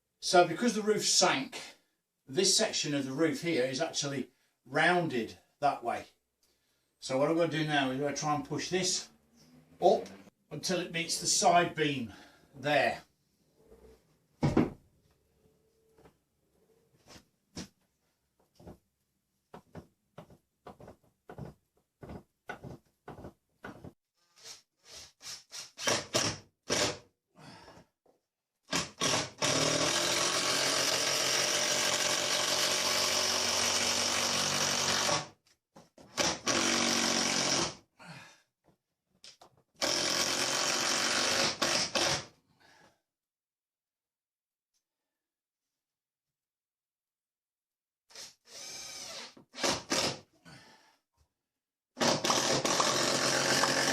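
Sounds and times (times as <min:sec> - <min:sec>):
power drill drilling into wood: 0:25.6 - 0:27.0, 0:28.7 - 0:35.3, 0:36.2 - 0:37.8, 0:39.8 - 0:42.3, 0:48.1 - 0:50.2, 0:52.0 - 0:53.9.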